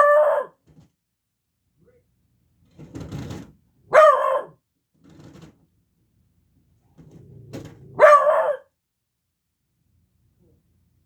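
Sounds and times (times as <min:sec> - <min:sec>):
puppy baying: 0:08.0 - 0:08.6.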